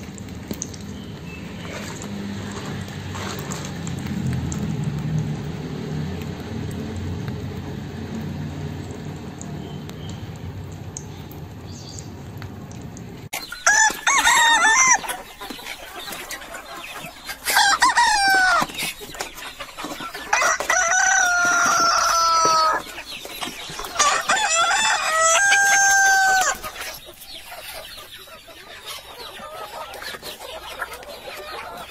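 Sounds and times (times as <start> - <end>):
roosters crowing: 13.4 - 15.5, 16.5 - 19.0, 19.8 - 26.9.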